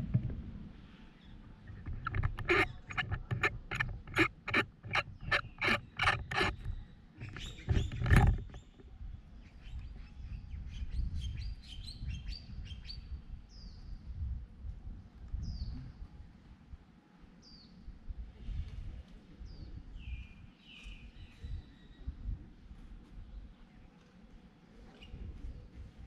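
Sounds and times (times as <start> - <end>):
birds chirping: 1.1 - 8.8.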